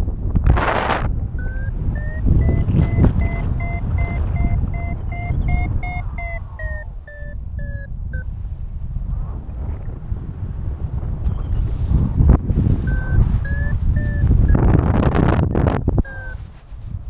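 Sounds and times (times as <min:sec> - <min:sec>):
wind on microphone: 0:00.0 - 0:17.0
variometer beeping: 0:01.3 - 0:08.4, 0:12.8 - 0:16.5.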